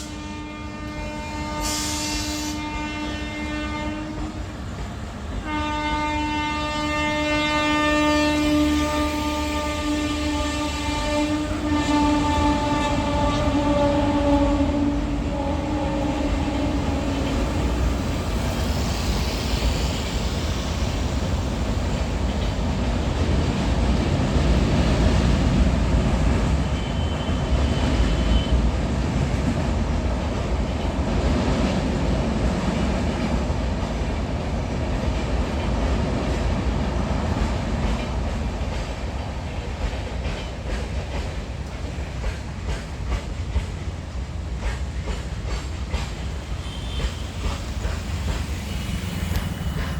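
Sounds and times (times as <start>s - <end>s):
train horn: 0.0s - 4.5s, 5.4s - 19.1s, 26.6s - 28.7s, 46.4s - 49.9s
freight train rumbling on rails: 0.0s - 49.9s
wheels clacking over rail joints: 37.3s - 49.9s.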